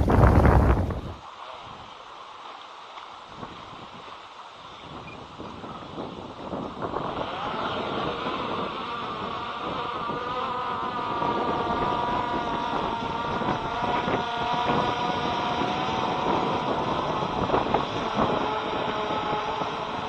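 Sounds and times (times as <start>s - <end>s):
quadcopter propellers humming: 0.0s - 1.2s
wind buffeting microphone: 0.0s - 1.2s, 4.9s - 20.0s.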